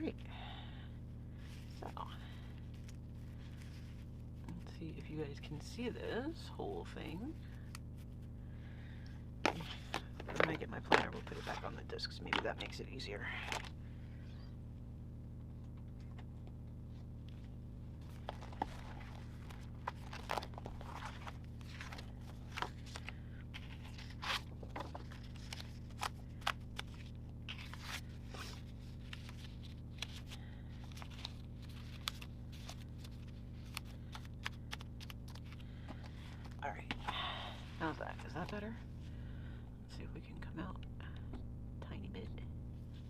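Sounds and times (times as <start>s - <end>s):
steady low hum: 0.0s - 43.0s
paper pages rustling: 2.6s - 4.7s, 9.4s - 12.8s, 18.0s - 37.0s.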